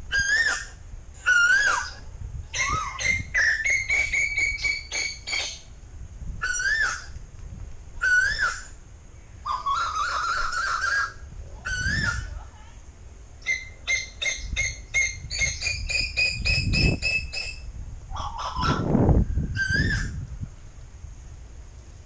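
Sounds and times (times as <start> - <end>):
koel whistled calls: 0.1 - 2.0, 2.6 - 5.7, 6.4 - 7.2, 8.0 - 8.8, 9.5 - 12.3, 13.4 - 17.6, 19.6 - 20.2.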